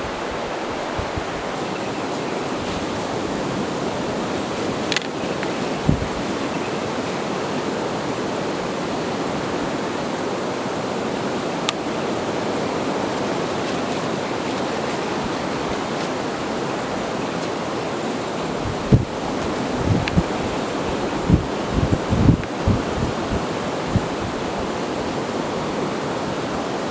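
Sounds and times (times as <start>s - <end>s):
heavy surf breaking on beach: 0.0s - 26.9s
wind: 0.0s - 26.9s.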